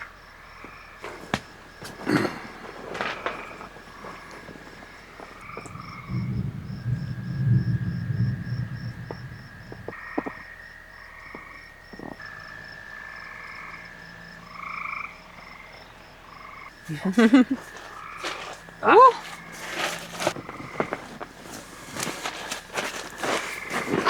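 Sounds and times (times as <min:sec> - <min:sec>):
frogs trilling and croaking: 0:00.0 - 0:24.0
insects pulsing: 0:00.0 - 0:24.0
low rumble: 0:05.7 - 0:10.0.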